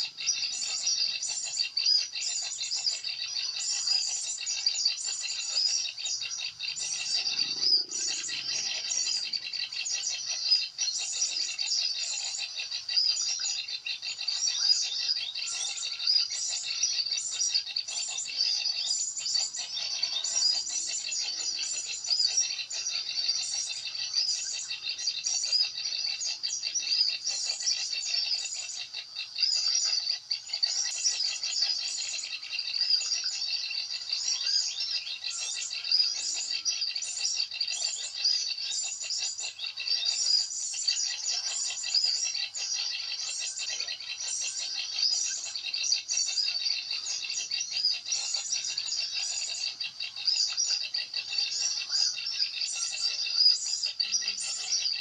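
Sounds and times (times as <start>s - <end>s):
small songbirds chirping: 0.0s - 55.0s.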